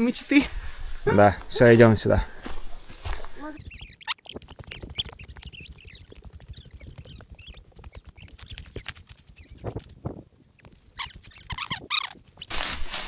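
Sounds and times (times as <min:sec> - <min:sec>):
footsteps crunching on dry twigs: 0:02.3 - 0:03.7, 0:12.2 - 0:13.0.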